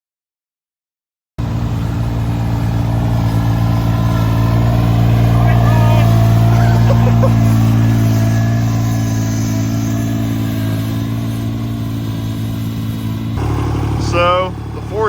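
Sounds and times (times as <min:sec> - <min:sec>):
diesel tractor engine running: 0:01.4 - 0:15.0.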